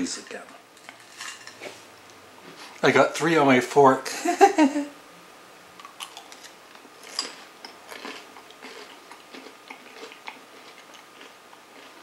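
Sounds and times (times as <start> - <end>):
person chewing food: 5.8 - 12.0.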